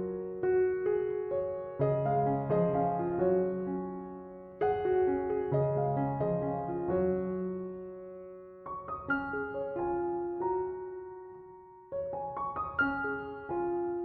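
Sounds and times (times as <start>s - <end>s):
soft piano music: 0.0s - 14.0s.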